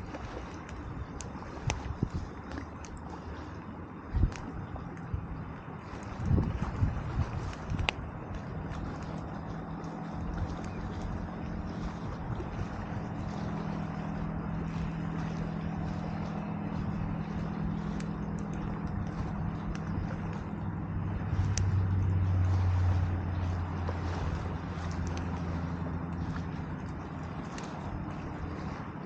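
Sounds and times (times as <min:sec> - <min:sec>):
deeper engine tone: 0:00.0 - 0:29.0
distant engine humming: 0:00.0 - 0:29.0
campfire crackling and popping: 0:00.6 - 0:03.0, 0:04.2 - 0:04.5, 0:07.4 - 0:09.2, 0:16.7 - 0:22.2.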